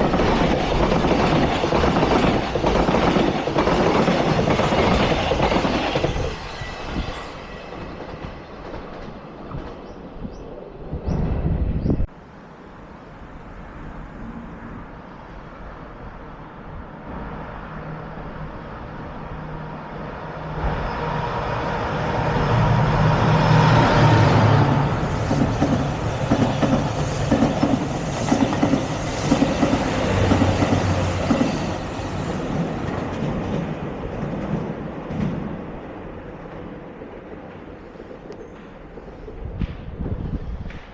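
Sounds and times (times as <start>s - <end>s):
train passing: 0.0s - 40.9s.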